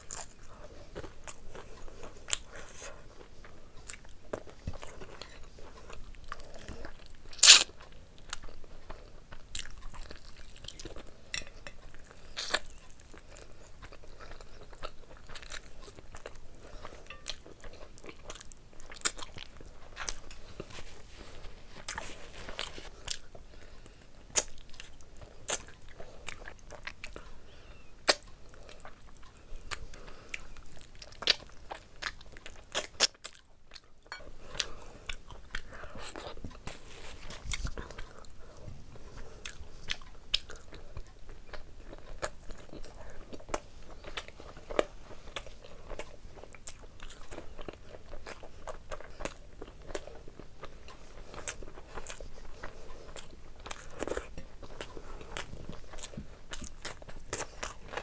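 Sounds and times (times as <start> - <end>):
chewing and wet mouth smacks: 39.0 - 58.0.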